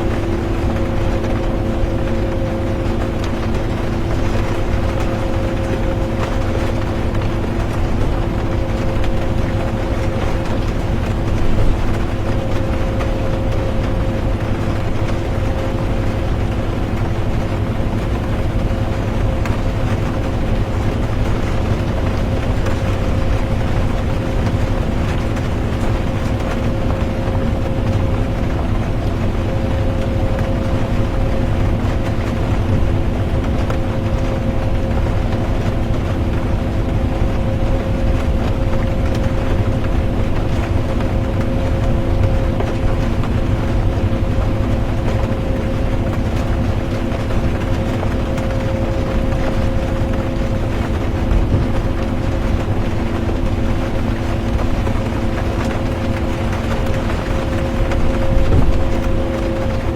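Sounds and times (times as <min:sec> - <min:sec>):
constant hum: 0:00.0 - 0:59.9
rain patter on bus: 0:00.0 - 0:59.9
drivetrain hum: 0:36.0 - 0:59.9.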